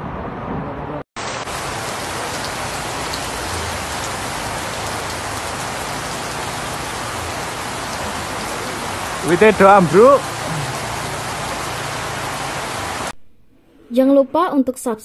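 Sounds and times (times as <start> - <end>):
heavy rain pouring: 1.2 - 13.2.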